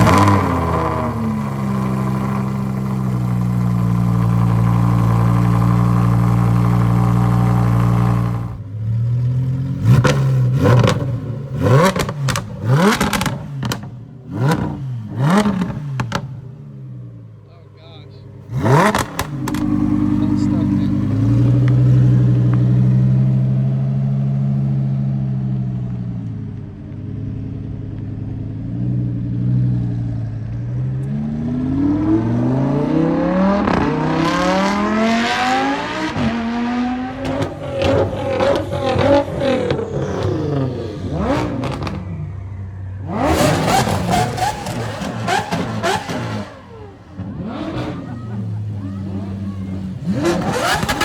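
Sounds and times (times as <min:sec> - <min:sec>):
car engine revving: 0:00.0 - 0:26.0, 0:27.1 - 0:51.0
exhaust pops and cracks: 0:11.9 - 0:14.0, 0:18.8 - 0:19.8.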